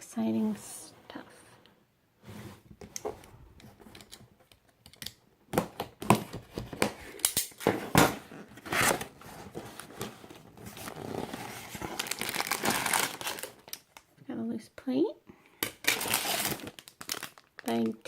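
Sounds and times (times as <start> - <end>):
cardboard tearing and rustling: 7.6 - 13.8, 15.8 - 17.4.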